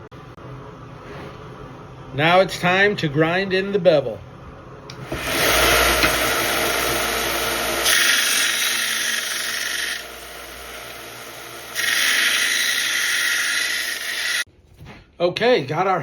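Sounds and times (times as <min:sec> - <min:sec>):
power grinder grinding metal: 0:05.1 - 0:14.5.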